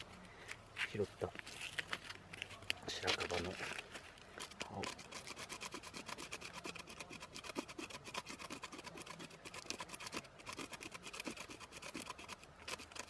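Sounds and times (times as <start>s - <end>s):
dry bark scraped by hand: 2.9s - 13.0s.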